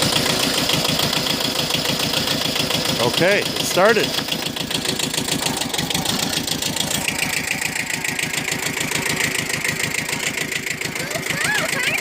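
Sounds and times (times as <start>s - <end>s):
diesel tractor engine idling: 0.0s - 12.0s.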